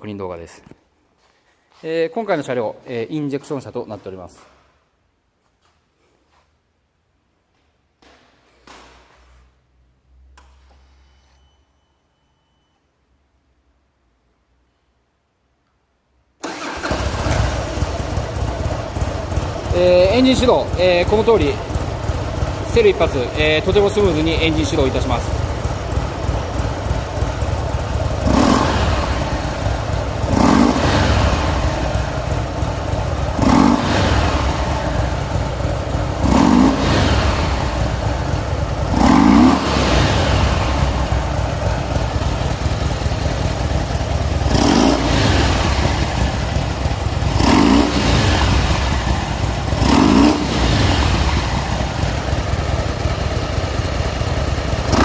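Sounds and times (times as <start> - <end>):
motorcycle engine idling and revving: 16.4 - 55.0.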